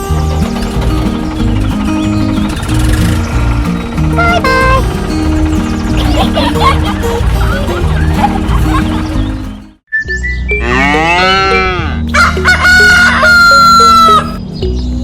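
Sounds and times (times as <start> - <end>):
background music: 0.0 - 15.0
farm animal calls: 10.5 - 14.4.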